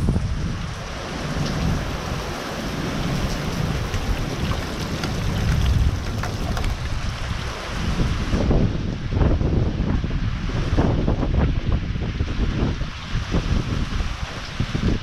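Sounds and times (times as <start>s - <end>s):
gusting wind rumble: 0.0s - 15.0s
heavy rain pouring: 0.0s - 15.0s
raindrops pattering on surfaces: 0.7s - 7.4s.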